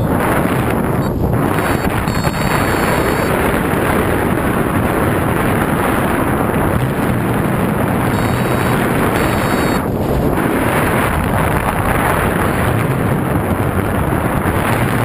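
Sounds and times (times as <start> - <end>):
wind rushing over microphone: 0.0 - 15.0
faint high beeps: 1.0 - 3.4, 8.1 - 9.8.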